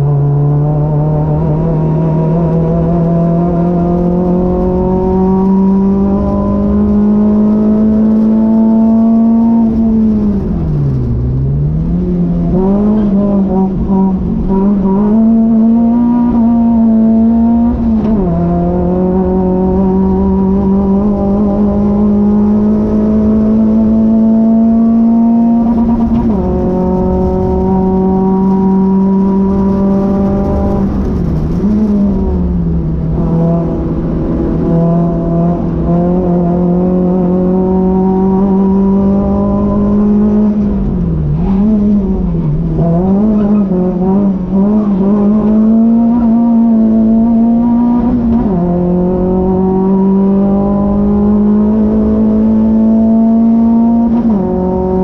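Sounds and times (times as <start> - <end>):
car engine revving: 0.0 - 55.0
road and wind noise: 0.0 - 55.0.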